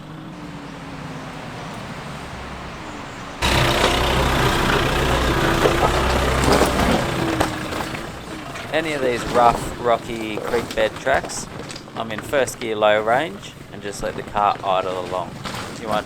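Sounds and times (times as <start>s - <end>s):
tyres crunching over rocks: 0.0s - 16.0s
vehicle engine idling: 0.0s - 16.0s
knocks: 3.4s - 12.6s.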